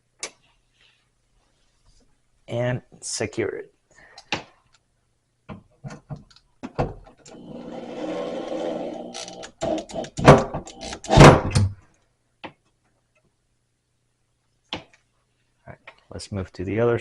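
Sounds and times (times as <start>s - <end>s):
power driver motor running: 7.3s - 11.1s.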